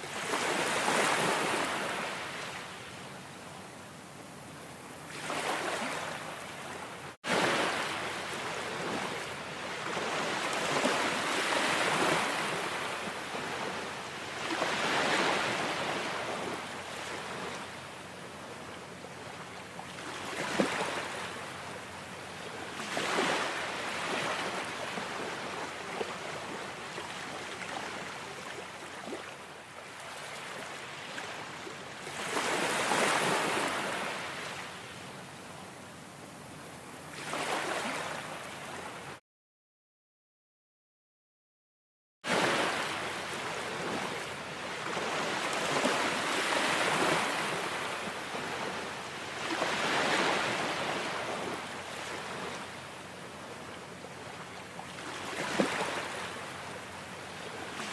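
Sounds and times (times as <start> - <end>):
ocean waves breaking: 0.0 - 2.6, 5.1 - 17.8, 19.9 - 21.7, 22.5 - 34.7, 37.1 - 39.2, 42.3 - 53.3, 54.9 - 56.8.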